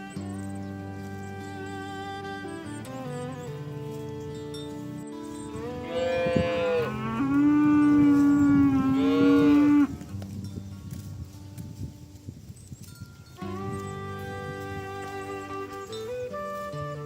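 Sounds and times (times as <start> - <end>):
cow mooing: 5.3 - 10.0.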